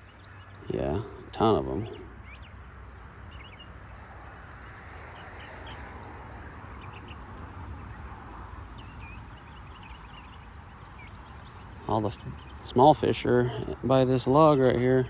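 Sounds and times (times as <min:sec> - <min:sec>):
bird chirps: 0:00.0 - 0:13.8.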